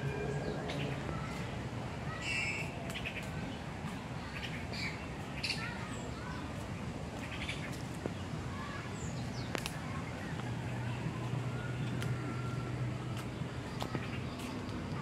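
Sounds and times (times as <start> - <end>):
steady low hum: 0.0 - 2.1
birds chirping and squawking: 2.1 - 3.3.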